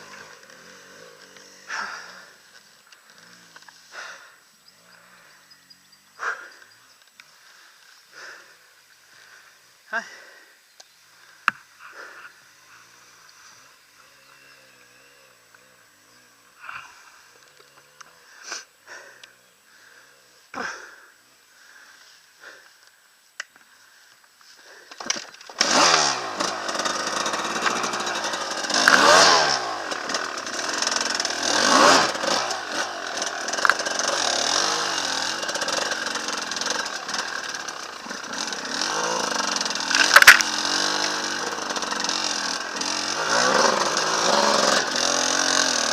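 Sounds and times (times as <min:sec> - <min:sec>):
motorcycle engine revving: 0:00.0 - 0:06.6, 0:12.0 - 0:18.4, 0:25.5 - 0:45.9.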